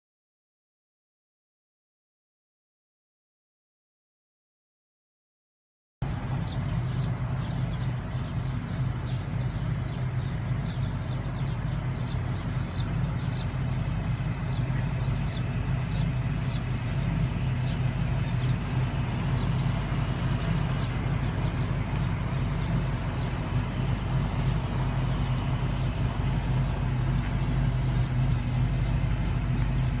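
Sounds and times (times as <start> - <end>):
car engine idling: 6.0 - 30.0.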